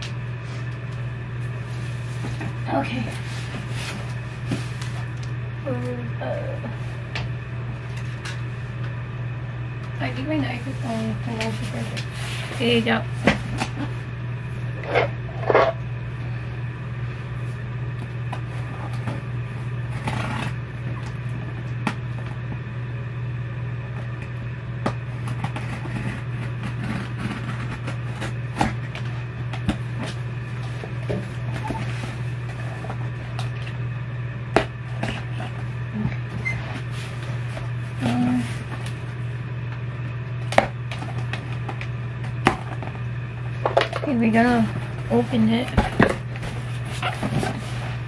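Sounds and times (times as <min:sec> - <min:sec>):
knife clicking and scraping cardboard: 0:25.4 - 0:28.8.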